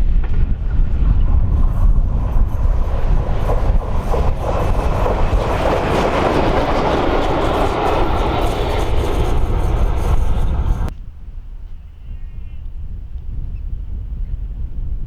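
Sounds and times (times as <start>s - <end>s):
wind on microphone: 0.0s - 15.0s
steam locomotive running: 0.2s - 10.9s.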